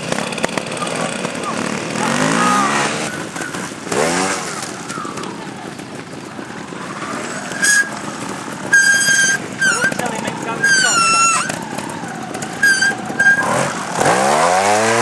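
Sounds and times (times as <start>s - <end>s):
motorcycle engine revving: 0.0s - 15.0s
high steady squeal: 6.4s - 14.4s.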